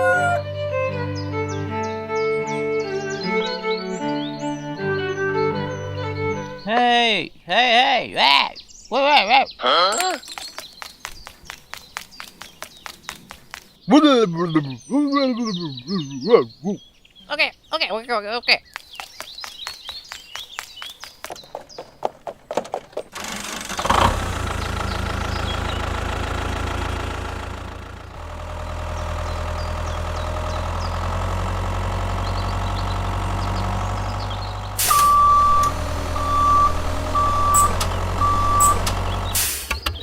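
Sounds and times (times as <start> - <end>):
high electronic beeps: 34.8 - 39.4.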